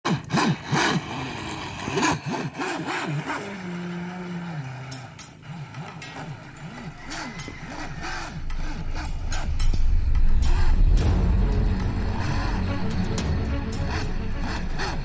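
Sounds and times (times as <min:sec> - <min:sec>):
model boat motor revving: 0:00.0 - 0:10.9, 0:11.7 - 0:15.0.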